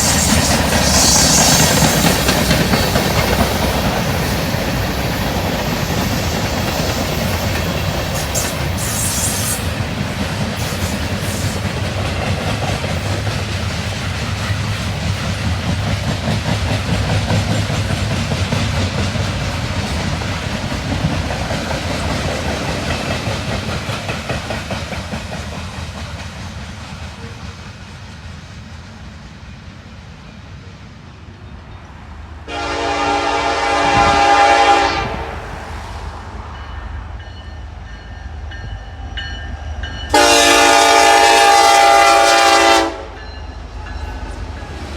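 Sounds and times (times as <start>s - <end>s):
train rumbling past: 0.0s - 44.9s
locomotive air horn: 32.5s - 35.4s, 40.1s - 43.2s.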